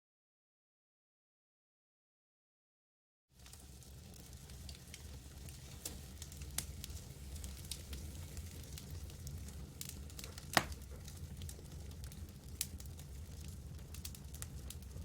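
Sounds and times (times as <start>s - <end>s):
campfire crackling and popping: 3.4s - 15.0s.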